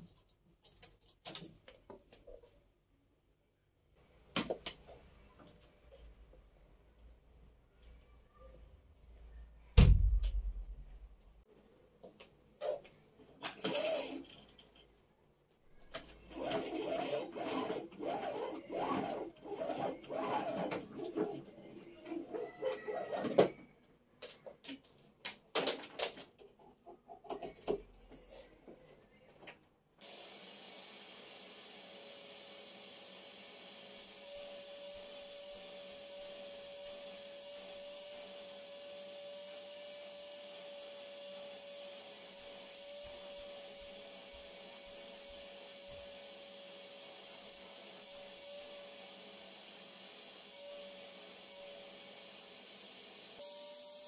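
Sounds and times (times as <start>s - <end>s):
vacuum cleaner whining: 13.5s - 14.3s, 15.9s - 23.6s, 30.0s - 54.0s.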